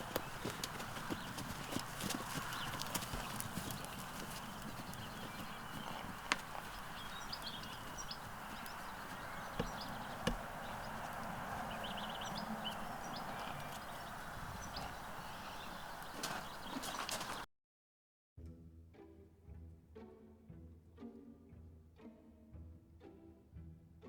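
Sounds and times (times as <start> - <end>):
horse hooves knocking: 0.0 - 17.4
small birds chirping: 0.0 - 17.4.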